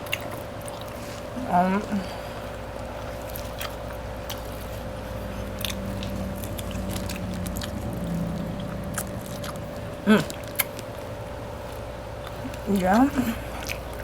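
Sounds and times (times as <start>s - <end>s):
chewing and biting: 0.0s - 1.4s, 2.4s - 14.0s
person humming: 10.0s - 10.4s.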